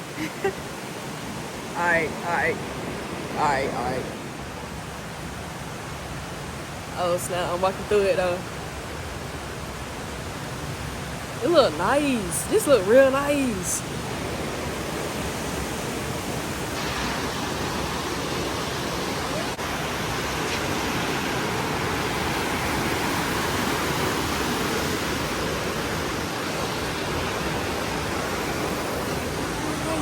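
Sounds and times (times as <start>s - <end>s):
fast-flowing creek water: 0.0s - 30.0s
waterfall rushing: 12.8s - 30.0s.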